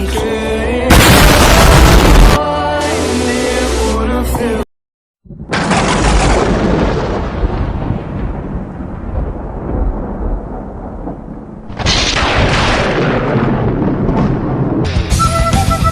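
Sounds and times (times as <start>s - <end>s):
loud thunderclap: 0.9s - 2.4s, 5.3s - 15.2s
thunder rumbling: 0.9s - 2.4s, 5.3s - 15.3s.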